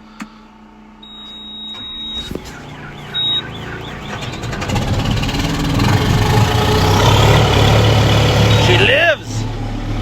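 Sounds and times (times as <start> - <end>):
diesel engine cranking and running: 0.0 - 10.0
high warning beep: 1.0 - 4.6.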